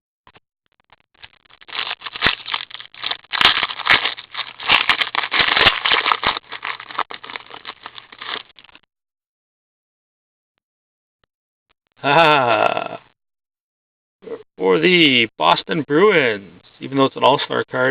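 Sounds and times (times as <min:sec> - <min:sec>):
wrapper crinkling and tearing: 0:01.2 - 0:08.8.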